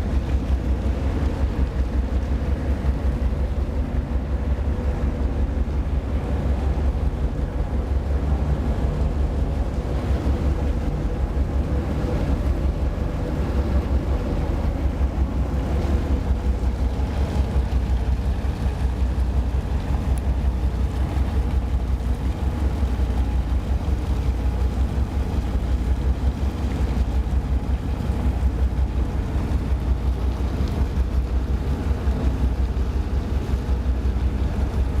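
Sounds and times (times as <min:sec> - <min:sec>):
ship engines idling: 0:00.0 - 0:35.0.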